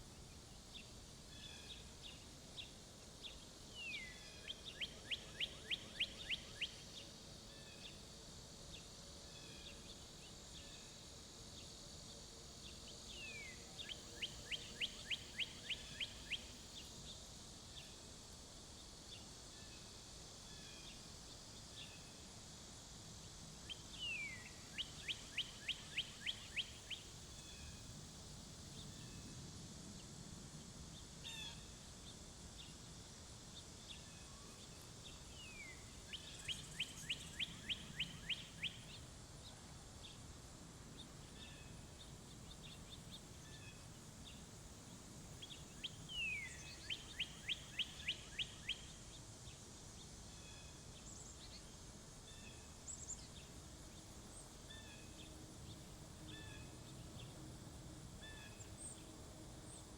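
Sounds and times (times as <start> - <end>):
steady high-pitched hiss: 0.0 - 59.9
songbird singing: 0.7 - 7.0, 12.6 - 17.2, 23.7 - 29.3, 35.0 - 39.1, 40.9 - 59.9
faint bird chirps: 35.5 - 39.0, 45.4 - 49.0.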